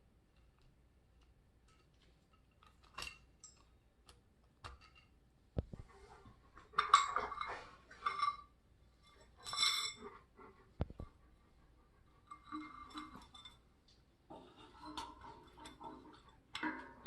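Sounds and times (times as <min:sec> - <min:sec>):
metal and glass parts clinking: 0:09.1 - 0:10.0.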